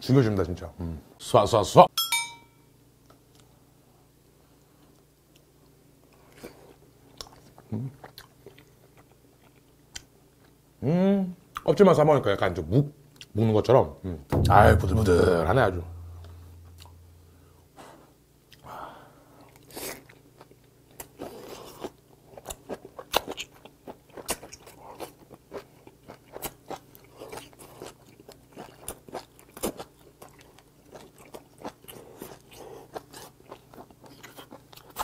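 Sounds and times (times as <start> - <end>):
person chewing with mouth clicks: 6.2 - 10.6, 19.4 - 35.0.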